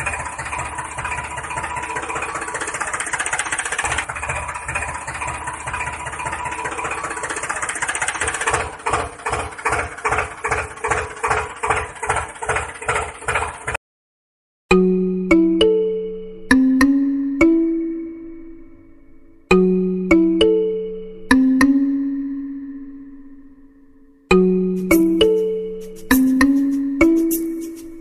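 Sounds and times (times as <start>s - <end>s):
small motor rattling drone: 0.0s - 13.8s.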